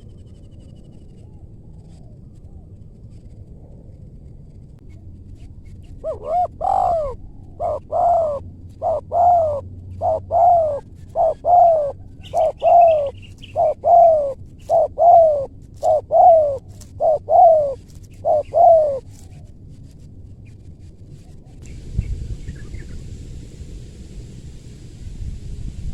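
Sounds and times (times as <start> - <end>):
dove cooing: 5.9 - 19.5.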